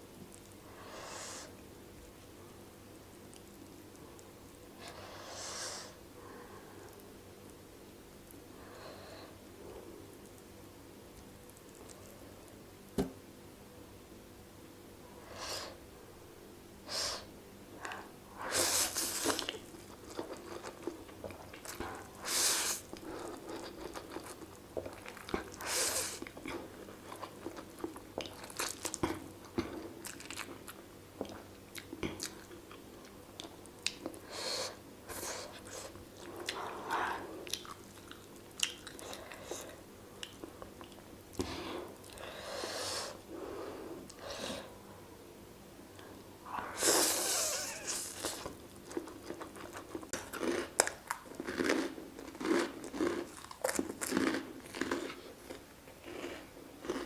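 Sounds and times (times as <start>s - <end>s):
person chewing and crunching: 18.8s - 34.2s, 37.4s - 42.2s, 47.1s - 57.0s.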